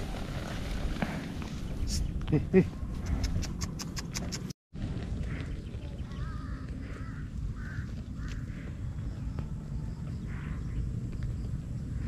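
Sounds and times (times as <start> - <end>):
low outdoor background noise: 4.8 - 12.0
birds calling: 5.1 - 12.0.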